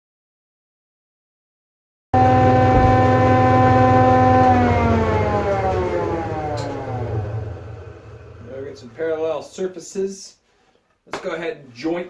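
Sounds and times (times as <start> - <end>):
machine motor spinning down: 2.2 - 9.0.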